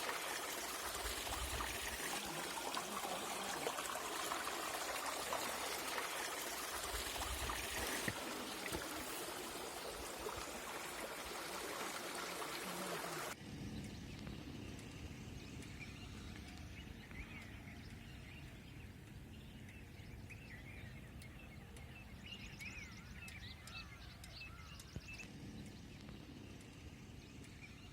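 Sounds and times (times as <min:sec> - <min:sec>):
rushing water: 0:00.0 - 0:13.4
small birds chirping: 0:13.6 - 0:27.9.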